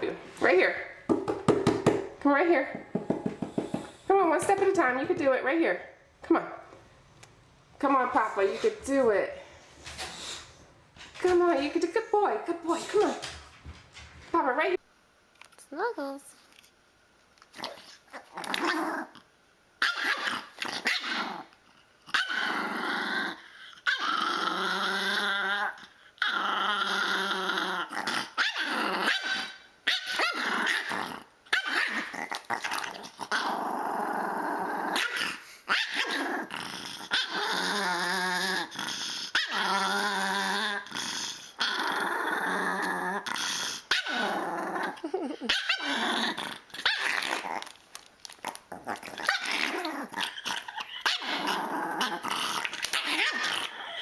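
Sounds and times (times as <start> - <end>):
dog growling and barking: 17.5 - 19.2, 19.8 - 54.0.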